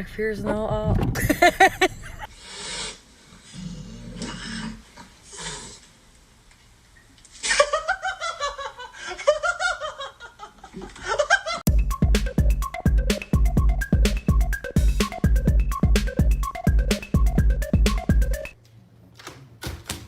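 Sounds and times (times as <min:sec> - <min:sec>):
person laughing hard: 0:01.2 - 0:02.3
music with a beat: 0:11.7 - 0:18.6.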